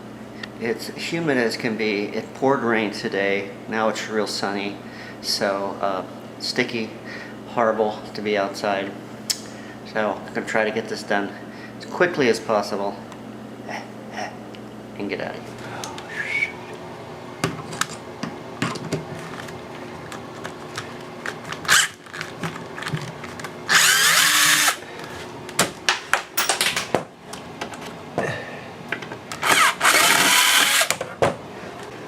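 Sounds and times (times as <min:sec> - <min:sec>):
handheld power tool running: 0:23.7 - 0:24.8, 0:29.4 - 0:30.9
sharp clicks and knocks: 0:25.9 - 0:27.1.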